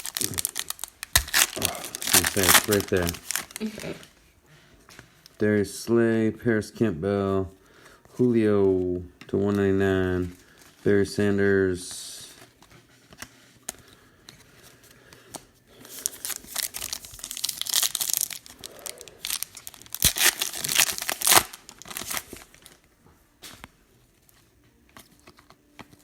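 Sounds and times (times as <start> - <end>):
wrapper tearing and crackling: 0.0 - 4.1, 15.9 - 22.8.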